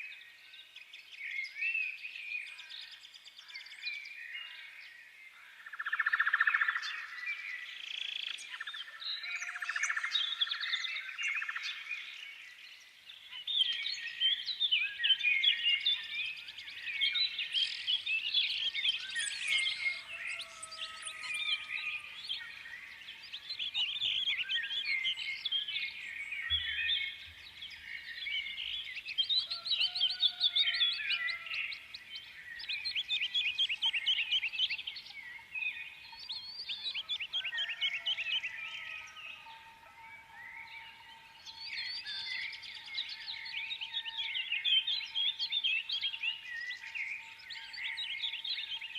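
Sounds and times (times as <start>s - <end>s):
small birds chirping and trilling: 0.0s - 48.9s.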